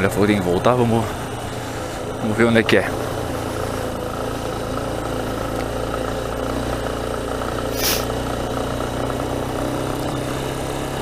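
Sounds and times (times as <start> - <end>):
motorcycle engine running at low revs: 0.0 - 11.0
brief hiss: 7.7 - 8.2.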